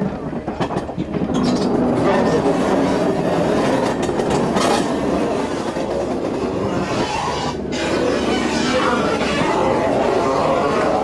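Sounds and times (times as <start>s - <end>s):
train wheels rumbling on rails: 0.0s - 11.0s
wheels clicking over rail joints: 0.0s - 11.0s.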